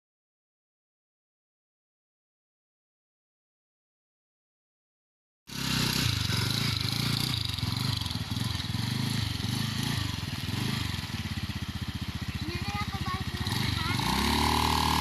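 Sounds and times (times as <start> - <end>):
small motorcycle engine running: 5.5 - 15.0.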